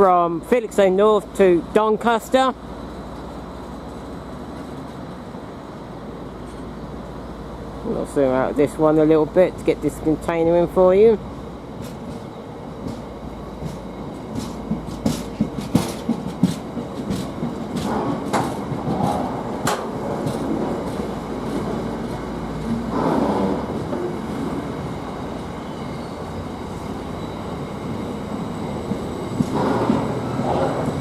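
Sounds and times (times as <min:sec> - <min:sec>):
train low rumble: 0:00.0 - 0:31.0
train wheels clicking on rail joints: 0:11.1 - 0:31.0.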